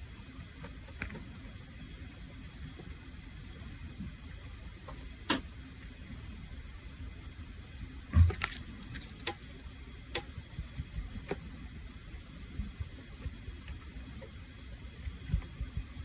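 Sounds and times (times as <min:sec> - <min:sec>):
soft background hiss: 0:00.0 - 0:16.0.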